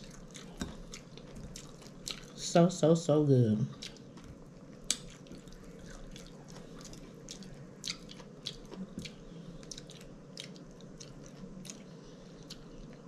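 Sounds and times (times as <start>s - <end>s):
mouth clicks and lip smacks chewing: 3.8s - 13.0s.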